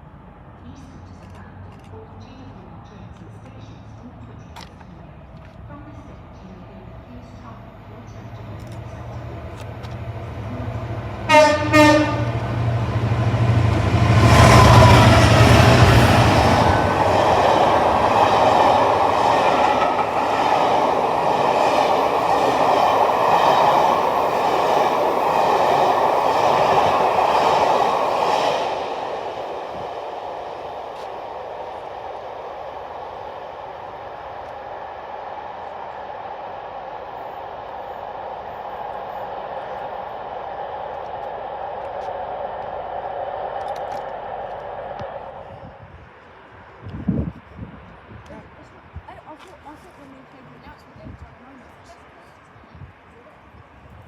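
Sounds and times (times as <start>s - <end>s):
train rushing past: 5.8s - 54.0s
train horn blasts: 11.2s - 12.7s.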